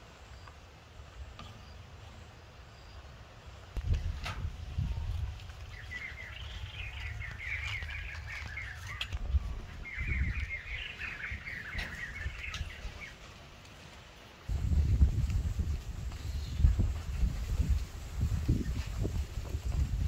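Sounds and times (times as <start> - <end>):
bird singing rapid chirps: 5.7 - 13.2.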